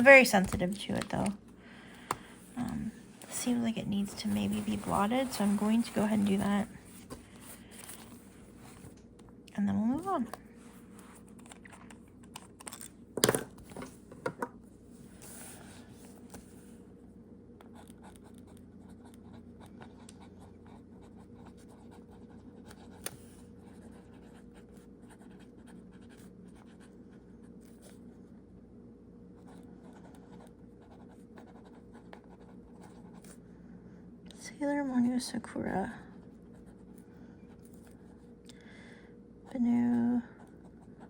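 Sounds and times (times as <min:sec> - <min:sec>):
steady low hum: 0:00.0 - 0:41.0
pen nib scratching paper: 0:17.7 - 0:23.0.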